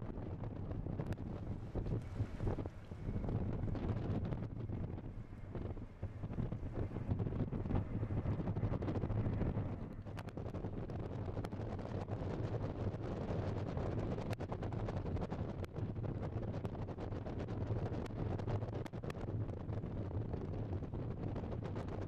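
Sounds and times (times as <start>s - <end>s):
wind buffeting microphone: 0.0s - 22.0s
faint crackles: 0.1s - 16.7s.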